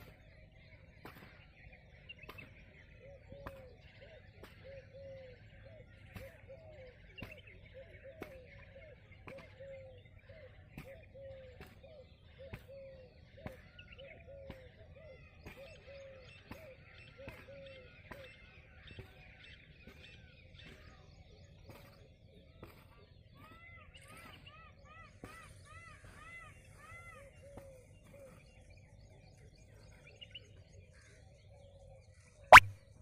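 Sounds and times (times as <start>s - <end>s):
faint birds calling: 0.0s - 33.0s.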